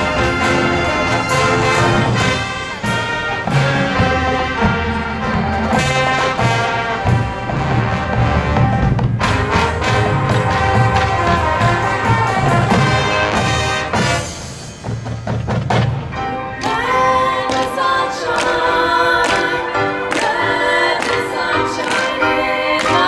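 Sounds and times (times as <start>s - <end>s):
pounding drums: 0.0s - 16.2s
marching band brass: 0.0s - 23.0s
voices singing: 16.6s - 23.0s.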